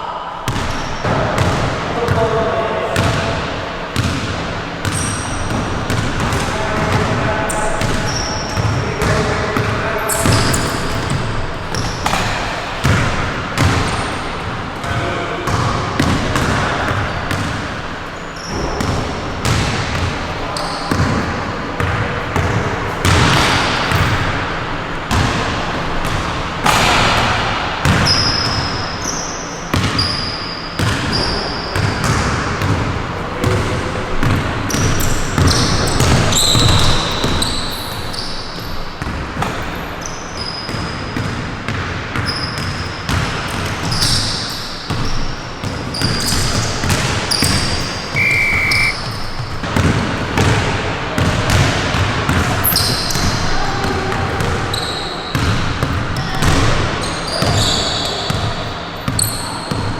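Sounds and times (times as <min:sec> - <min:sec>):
sneaker squeaks on floor: 0:04.8 - 0:06.0, 0:07.5 - 0:09.2, 0:10.0 - 0:12.4, 0:17.0 - 0:18.9, 0:20.5 - 0:21.3, 0:28.0 - 0:31.9, 0:34.7 - 0:38.7, 0:42.2 - 0:42.7, 0:43.9 - 0:49.6, 0:54.7 - 0:55.5, 0:57.0 - 0:58.4
basketball bouncing: 0:48.2 - 0:49.1.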